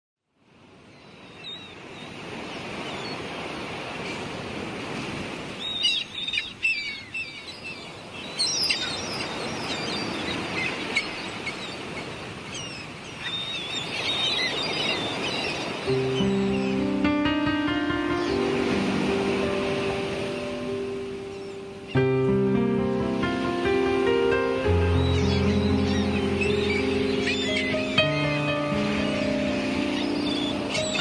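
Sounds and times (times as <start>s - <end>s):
birds chirping: 5.5s - 31.0s
surf: 8.0s - 31.0s.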